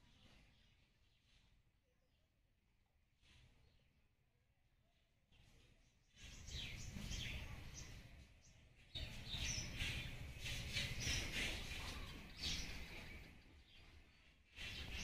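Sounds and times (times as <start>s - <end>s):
birds chirping: 5.3s - 15.0s.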